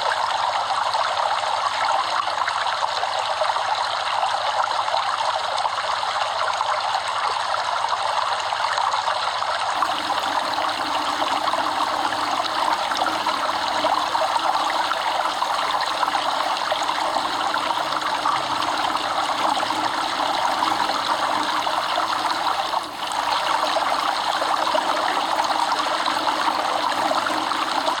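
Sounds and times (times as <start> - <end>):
stream water trickling: 9.8 - 28.0.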